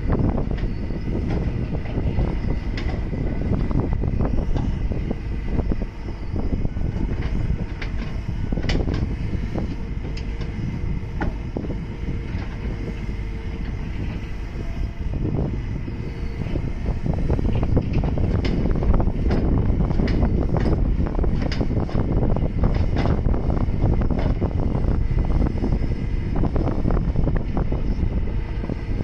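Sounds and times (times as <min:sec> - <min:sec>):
excavator diesel engine under load: 0:00.0 - 0:29.0
faint steady whine: 0:00.0 - 0:29.0
machine knocks and clanks: 0:07.2 - 0:10.6, 0:17.5 - 0:23.3.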